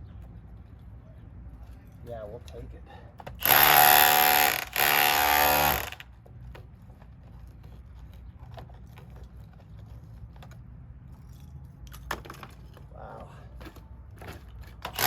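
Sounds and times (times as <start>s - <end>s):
chipping hammer buzzing: 3.4s - 6.0s.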